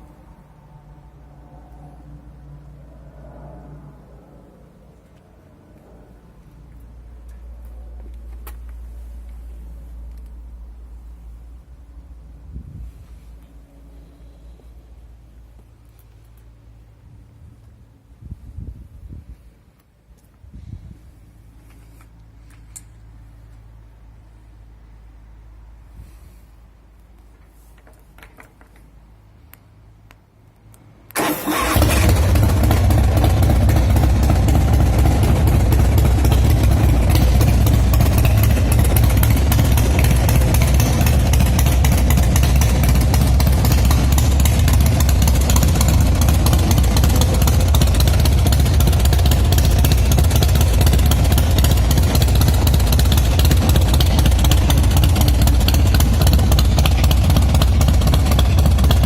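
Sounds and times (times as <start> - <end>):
motorcycle engine starting and running: 31.2 - 59.0.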